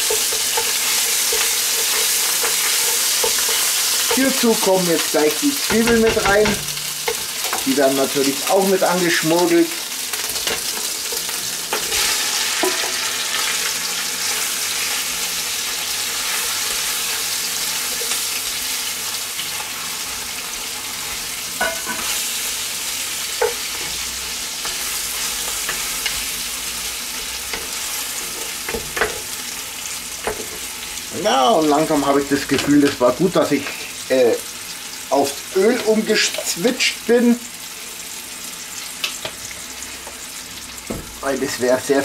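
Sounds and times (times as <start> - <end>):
onions sizzling in oil: 0.0 - 42.0
wooden spoon knocking pot: 5.7 - 7.6.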